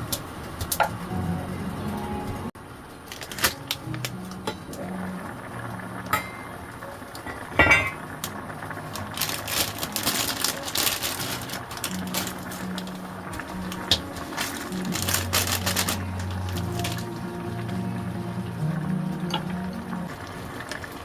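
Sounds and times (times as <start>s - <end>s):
soft background music: 0.0s - 21.0s
metal pots and utensils clinking: 6.1s - 6.5s, 7.2s - 8.2s.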